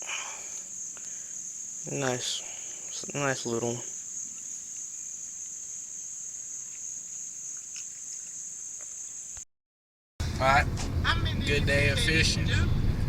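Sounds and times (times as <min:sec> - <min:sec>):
high-pitched insect chorus: 0:00.0 - 0:09.4.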